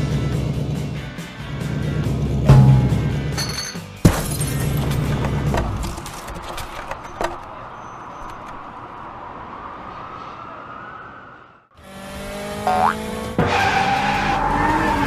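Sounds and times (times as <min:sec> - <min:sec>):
sharp hit: 0:02.5 - 0:03.4
cartoon music: 0:12.7 - 0:13.0.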